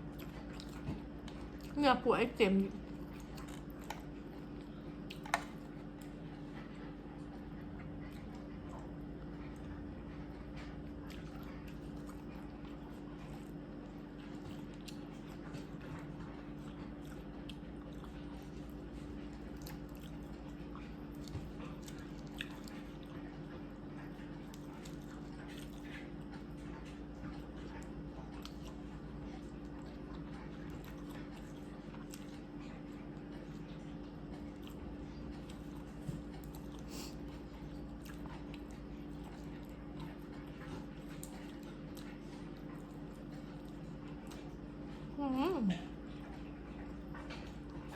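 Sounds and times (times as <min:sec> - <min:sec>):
person chewing: 0:00.0 - 0:01.8, 0:02.8 - 0:06.2, 0:11.0 - 0:23.2, 0:24.4 - 0:33.6, 0:34.2 - 0:44.9
steady low hum: 0:00.0 - 0:47.9.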